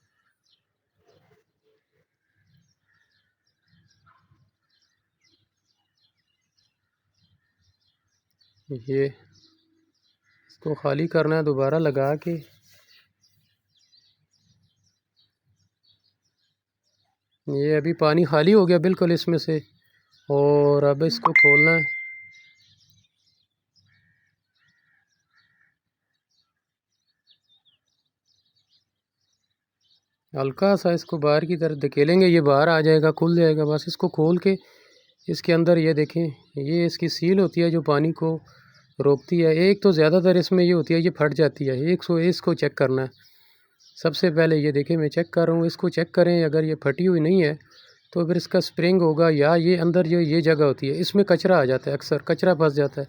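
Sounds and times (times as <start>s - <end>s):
faint birds chirping: 0.0s - 53.0s
ringing metallic ding: 21.1s - 22.5s.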